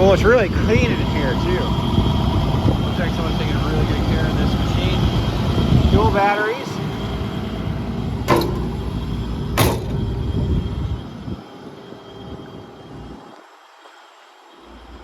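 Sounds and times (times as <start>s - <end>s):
excavator diesel engine rumble: 0.0s - 13.2s
sharp knocks: 8.3s - 8.9s, 9.6s - 10.1s.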